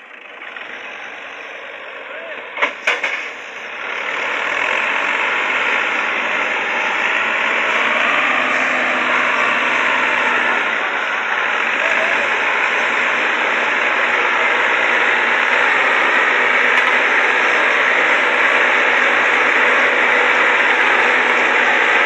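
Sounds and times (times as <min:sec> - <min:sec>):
tractor diesel engines running hard: 0:00.0 - 0:22.0.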